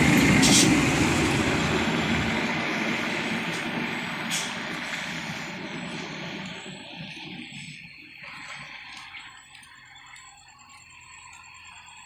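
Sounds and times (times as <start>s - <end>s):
heavy truck driving past: 0.0s - 9.3s.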